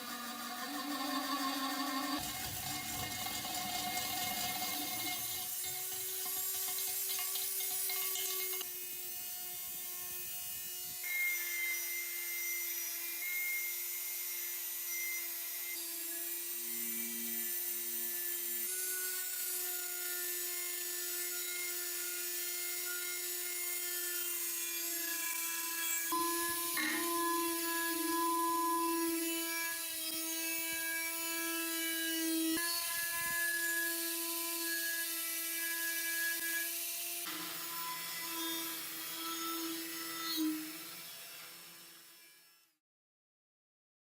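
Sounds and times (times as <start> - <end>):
power tool motor whining: 0.0 - 10.0, 10.8 - 42.6.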